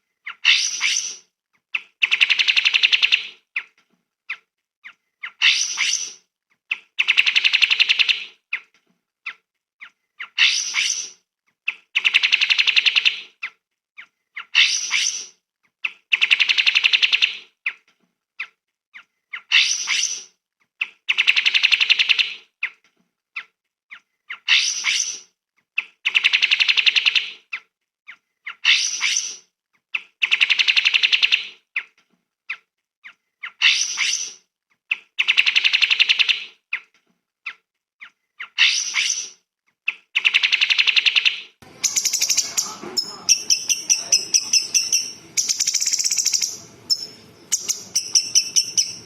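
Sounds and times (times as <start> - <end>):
songbird chips and trill: 41.8 - 49.0.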